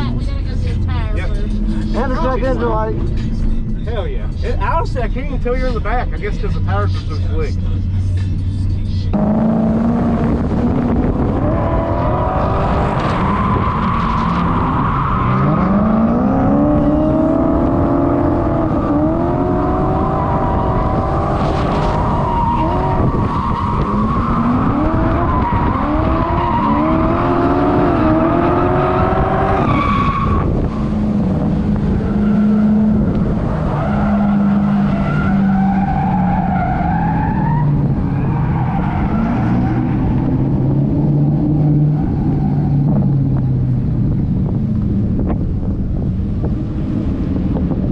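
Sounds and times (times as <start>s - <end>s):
car engine revving: 0.0s - 47.9s
tyres squealing and skidding: 11.4s - 31.0s, 32.0s - 40.6s, 41.4s - 42.9s.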